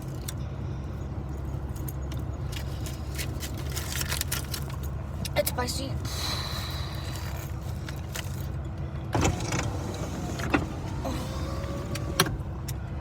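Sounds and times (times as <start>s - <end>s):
car cabin rumble: 1.4s - 13.0s.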